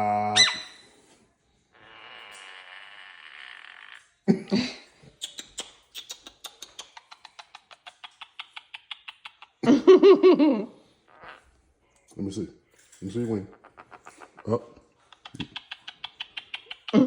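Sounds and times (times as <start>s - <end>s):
parrot warbling call: 0.0s - 0.8s
parrot chattering and clicking: 5.1s - 9.7s, 12.7s - 17.0s.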